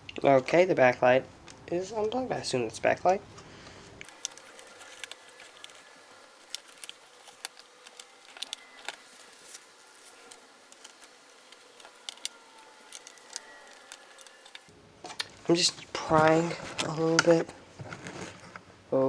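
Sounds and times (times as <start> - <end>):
faint steady hum: 0.0 - 19.0
small clicks and taps of parts: 4.0 - 14.7.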